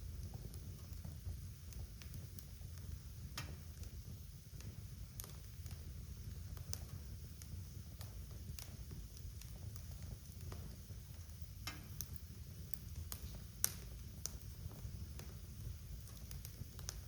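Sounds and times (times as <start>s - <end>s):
fire crackling and popping: 0.0s - 17.0s
fire flames rumbling: 0.0s - 17.0s.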